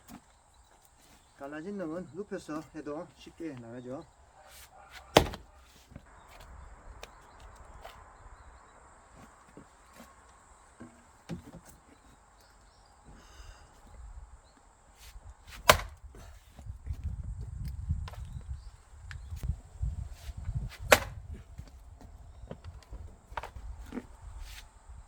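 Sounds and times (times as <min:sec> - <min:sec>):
wood rustling handling: 0:00.0 - 0:08.0, 0:09.1 - 0:25.0
axe splitting log: 0:04.5 - 0:06.0, 0:15.0 - 0:16.7, 0:20.2 - 0:21.7, 0:22.6 - 0:24.6
wood knock: 0:05.2 - 0:05.4, 0:20.9 - 0:21.1.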